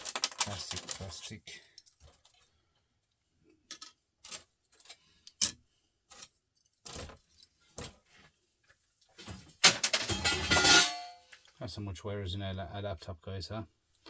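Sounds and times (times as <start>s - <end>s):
small parts clicking and clinking: 0.0s - 2.5s, 3.5s - 8.0s.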